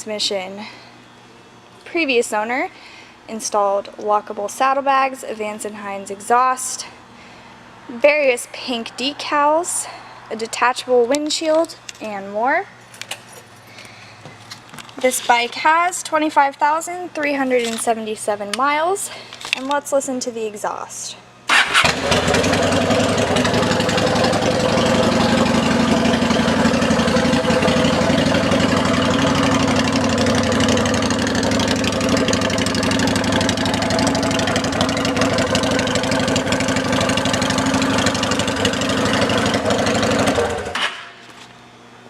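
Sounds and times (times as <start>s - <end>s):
motorcycle engine idling: 21.5s - 40.8s.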